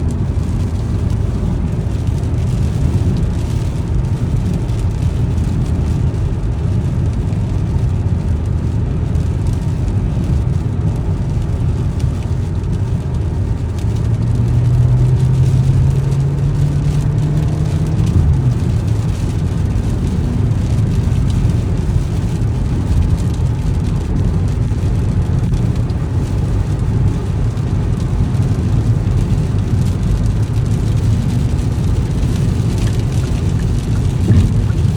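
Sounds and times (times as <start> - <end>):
road and tyre rumble: 0.0 - 34.9
engine tone rising: 34.2 - 34.9.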